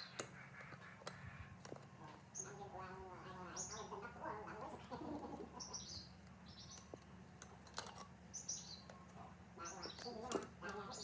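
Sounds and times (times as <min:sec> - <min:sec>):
birds chirping faintly: 0:00.0 - 0:11.0
low steady hum: 0:00.0 - 0:11.0.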